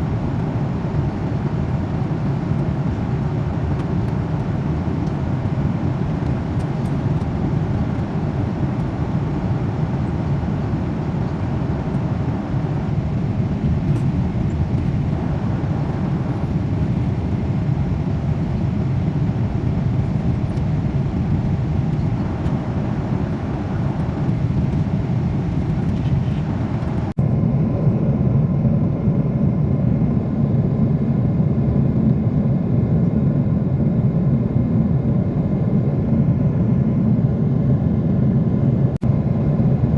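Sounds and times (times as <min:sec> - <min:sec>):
faint steady hum: 0:00.0 - 0:27.2
airliner cabin roar: 0:00.0 - 0:39.9.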